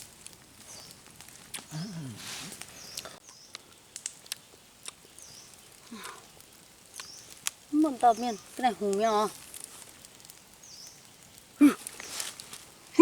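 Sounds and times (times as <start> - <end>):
rustling: 5.4 - 11.0, 11.7 - 13.0.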